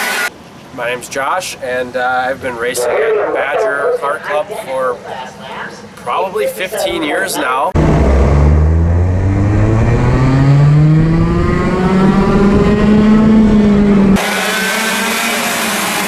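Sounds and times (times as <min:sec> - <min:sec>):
kart engine accelerating: 0:07.8 - 0:16.0.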